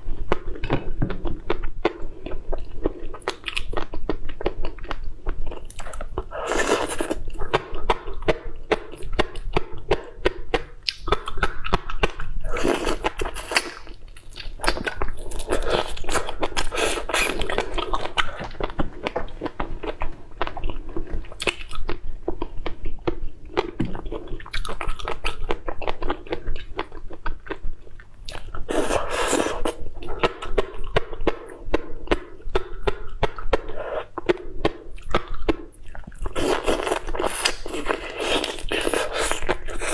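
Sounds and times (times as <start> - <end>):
chewing and biting food: 0.1 - 39.9.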